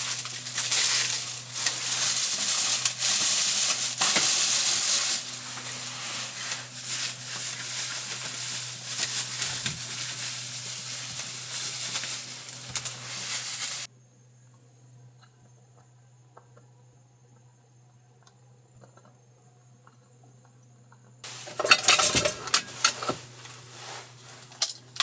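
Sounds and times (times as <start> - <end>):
food sizzling in a pan: 0.0 - 13.9.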